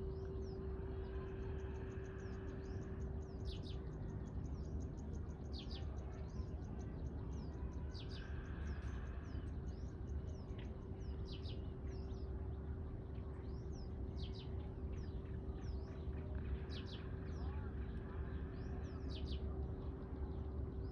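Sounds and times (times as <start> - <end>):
songbirds chirping: 0.0 - 20.9.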